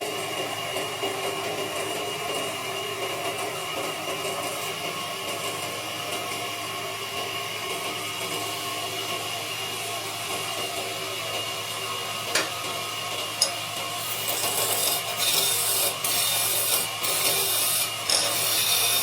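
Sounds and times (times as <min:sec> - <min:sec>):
wood lathe running: 0:13.1 - 0:19.0.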